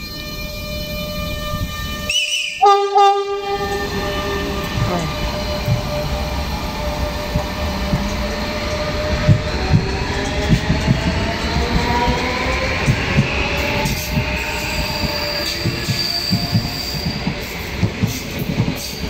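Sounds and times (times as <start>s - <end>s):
train horn blasts: 0.0s - 6.1s
electric train whine: 0.0s - 19.0s
wheels clacking over rail joints: 3.5s - 19.0s.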